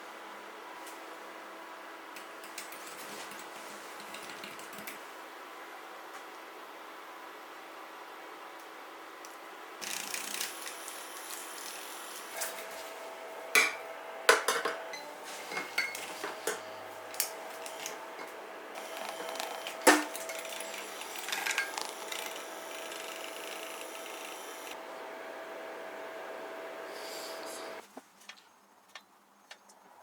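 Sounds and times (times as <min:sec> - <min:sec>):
utensils and dishes clinking: 0:13.6 - 0:16.7.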